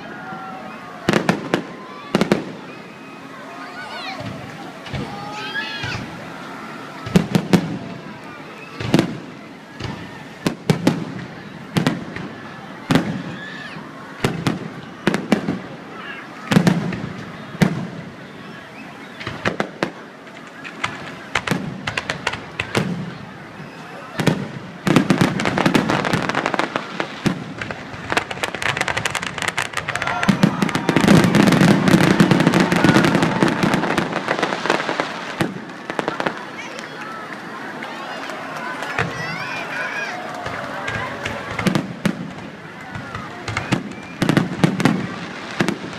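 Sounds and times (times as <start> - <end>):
fireworks crackling: 0.0 - 45.9
firework bangs: 1.0 - 3.2, 3.9 - 45.9.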